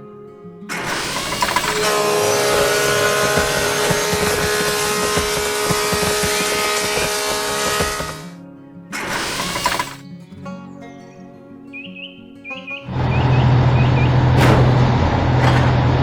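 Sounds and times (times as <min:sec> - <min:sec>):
machine engine running under load: 0:00.7 - 0:08.3, 0:09.0 - 0:10.0, 0:12.9 - 0:16.0.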